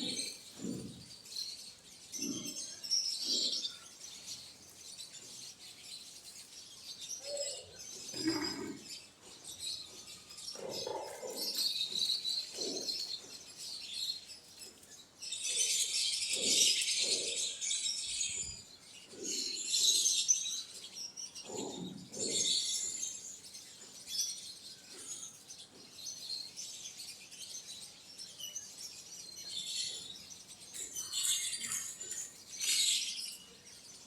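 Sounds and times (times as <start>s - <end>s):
quail chirping: 0.0s - 1.0s, 7.3s - 8.8s, 10.5s - 13.5s, 15.5s - 17.6s
lower bird calls: 0.0s - 1.3s, 7.2s - 9.1s.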